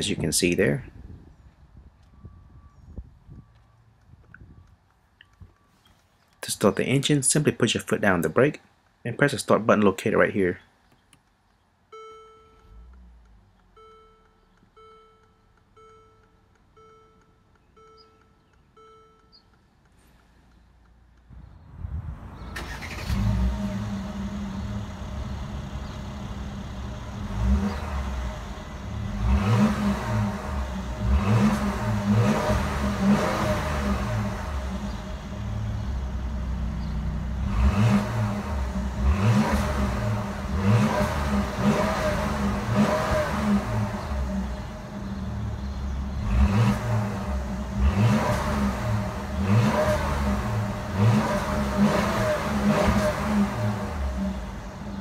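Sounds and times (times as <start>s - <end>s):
car engine starting and revving: 21.2s - 55.0s.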